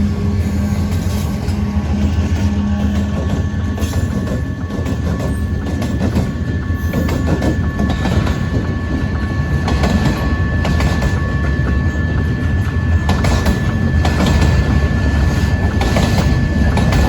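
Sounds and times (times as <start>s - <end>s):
train wheels rumbling on rail: 0.0s - 17.0s
wheels clicking over rail joints: 0.9s - 17.0s.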